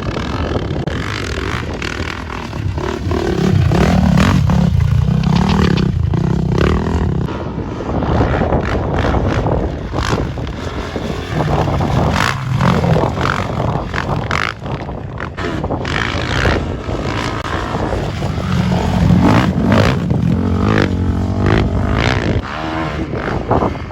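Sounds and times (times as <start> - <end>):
rough noise: 0.0 - 7.6
motorcycle engine revving: 0.0 - 23.9.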